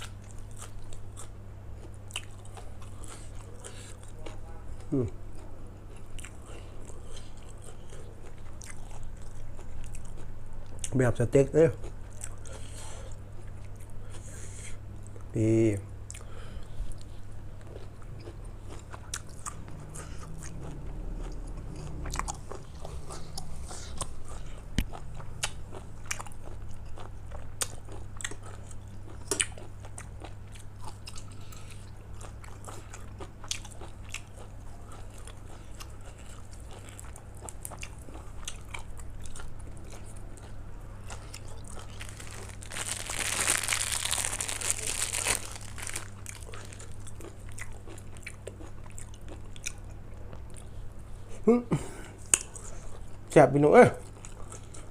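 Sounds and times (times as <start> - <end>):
person chewing and crunching food: 0.0 - 11.0, 11.7 - 15.3, 16.1 - 51.5, 52.1 - 53.3, 54.0 - 54.9.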